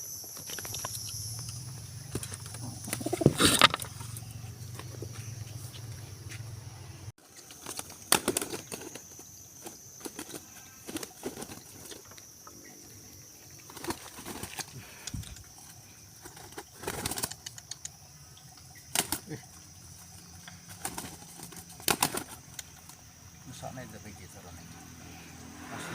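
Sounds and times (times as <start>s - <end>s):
pigeon wings flapping: 2.1s - 4.0s, 7.4s - 12.0s, 13.6s - 14.9s, 15.6s - 17.8s, 18.9s - 19.4s, 20.6s - 23.0s.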